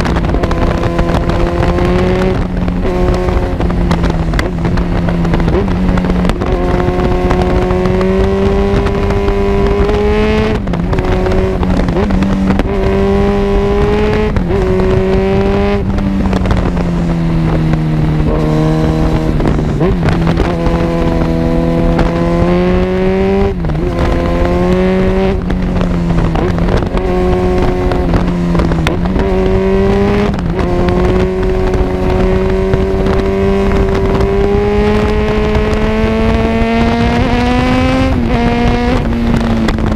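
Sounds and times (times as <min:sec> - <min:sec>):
motorcycle exhaust revving: 0:00.0 - 0:39.9.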